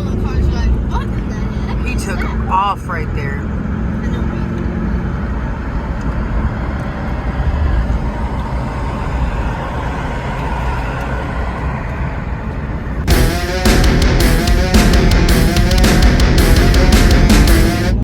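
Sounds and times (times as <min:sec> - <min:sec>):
rushing wind and road noise: 0:00.0 - 0:13.1.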